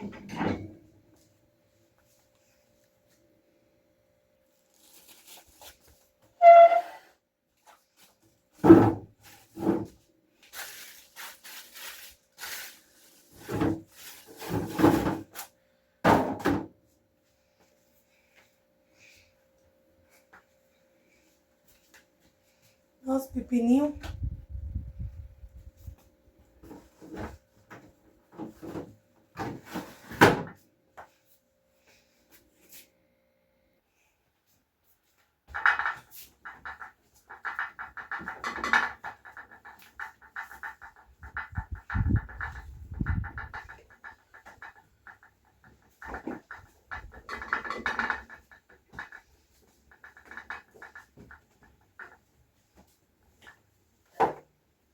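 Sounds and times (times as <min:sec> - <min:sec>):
rustling: 0:04.5 - 0:06.1, 0:10.4 - 0:14.7.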